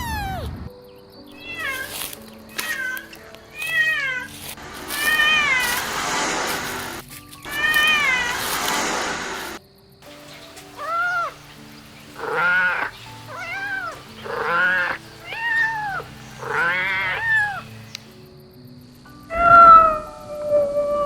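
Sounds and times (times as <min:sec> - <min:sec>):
soft background music: 0:00.0 - 0:21.0
kitten meowing: 0:01.4 - 0:04.3, 0:10.8 - 0:11.4, 0:12.2 - 0:17.9.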